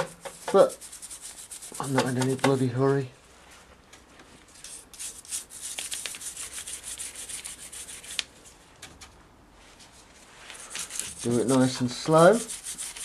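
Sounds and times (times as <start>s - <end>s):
brush scrubbing engine casing: 0.0s - 2.7s, 10.5s - 13.0s.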